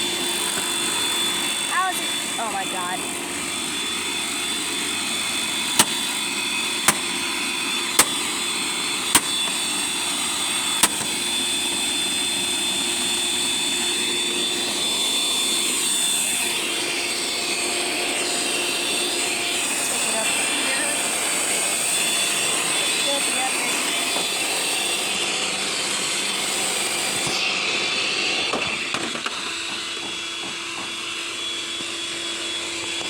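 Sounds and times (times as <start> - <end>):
vacuum motor whining: 0.0 - 33.0
sharp clicks: 6.9 - 7.1, 9.2 - 9.5.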